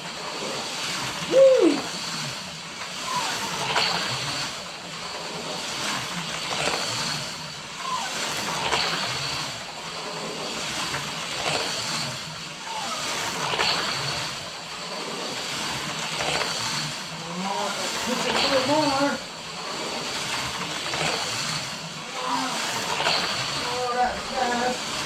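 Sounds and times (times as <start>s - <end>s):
small electric motor whining: 0.0s - 25.0s
slot car clattering on track: 17.7s - 25.0s.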